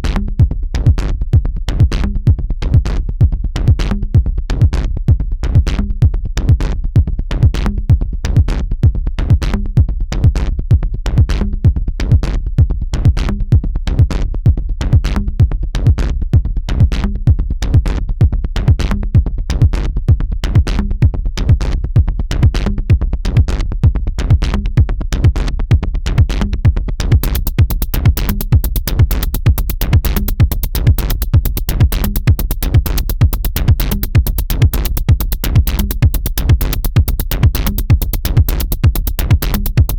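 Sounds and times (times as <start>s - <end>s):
hi-hat pattern: 27.0s - 39.9s
electronic dance music: 27.2s - 39.9s.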